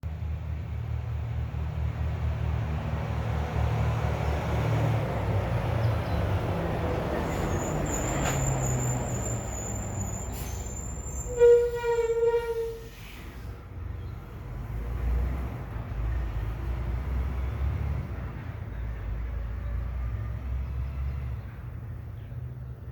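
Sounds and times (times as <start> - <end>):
truck engine rumble: 0.0 - 22.9
brakes squealing: 6.9 - 13.6.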